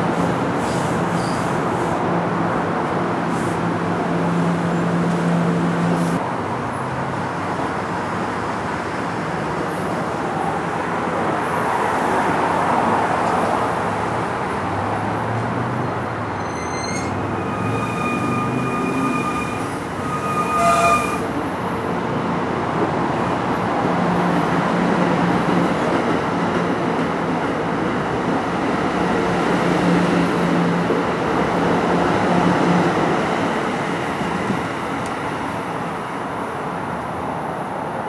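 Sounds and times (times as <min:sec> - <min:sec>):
train wheels squealing: 0:00.6 - 0:01.5, 0:16.4 - 0:21.3.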